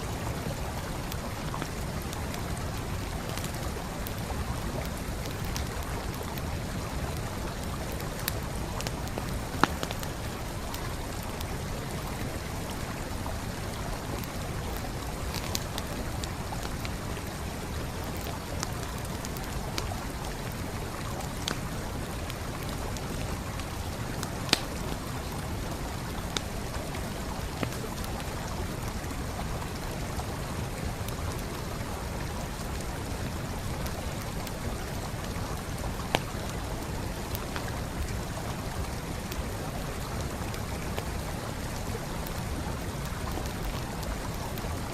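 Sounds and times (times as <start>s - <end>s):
campfire crackling: 0.0s - 44.9s
flowing stream: 0.0s - 44.9s
sharp fire pops: 24.5s - 24.8s.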